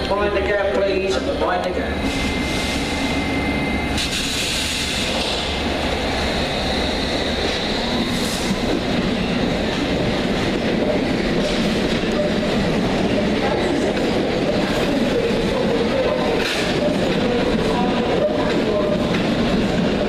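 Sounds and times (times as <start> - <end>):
train running on track: 0.0 - 20.0
thin steady whine: 1.1 - 5.1
hiss: 4.0 - 5.6.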